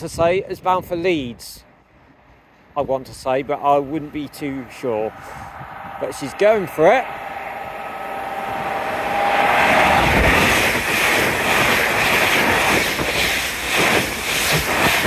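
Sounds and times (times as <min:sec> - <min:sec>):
train rushing past: 0:03.4 - 0:15.0
train whine: 0:03.5 - 0:15.0.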